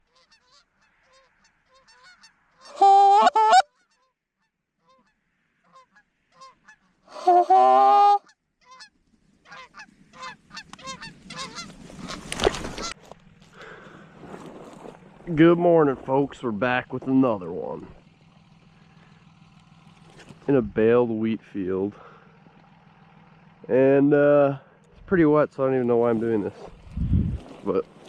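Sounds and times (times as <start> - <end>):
canada geese honking: 0.0 - 14.0.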